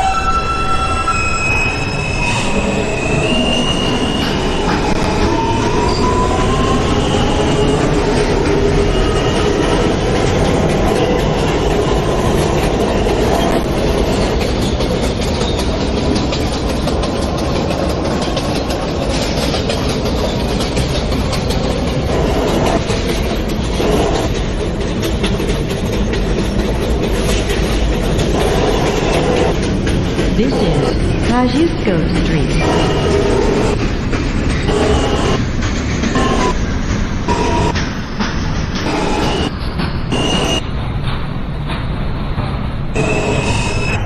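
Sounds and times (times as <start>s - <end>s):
subway motor whine: 0.0s - 44.0s
train wheels rumbling on rails: 0.0s - 44.0s
wheels clicking over rail joints: 7.0s - 30.4s.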